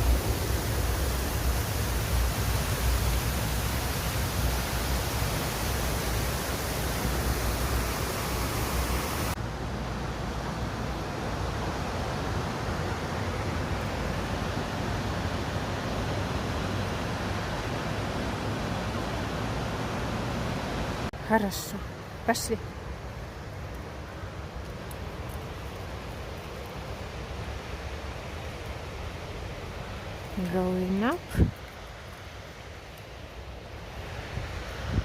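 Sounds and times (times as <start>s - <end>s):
water pouring down waterfall: 0.0s - 10.1s.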